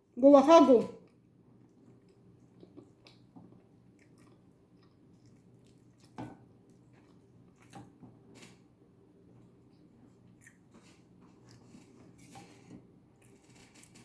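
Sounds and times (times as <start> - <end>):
wet chewing and mouth smacks: 1.0 - 7.8.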